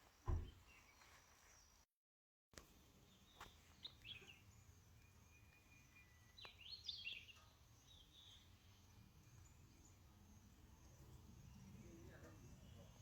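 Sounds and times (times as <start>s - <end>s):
faint outdoor background: 0.0s - 1.9s, 2.6s - 13.0s.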